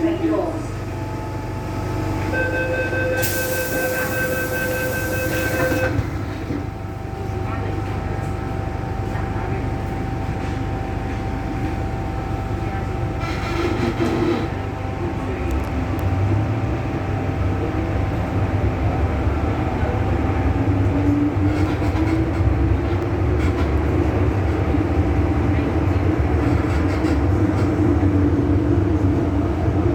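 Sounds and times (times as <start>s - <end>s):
train wheel and motor noise: 0.0s - 29.9s.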